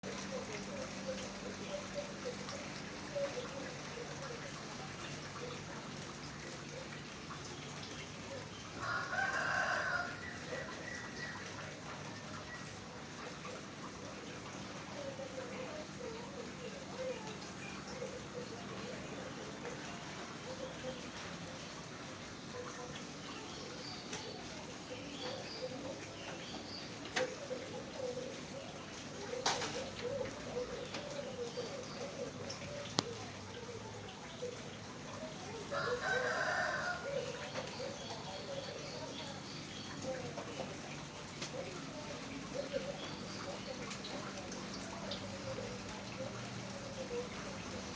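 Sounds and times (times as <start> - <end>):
rain dripping: 0.0 - 47.9
rooster crowing: 8.8 - 10.5, 35.7 - 37.3.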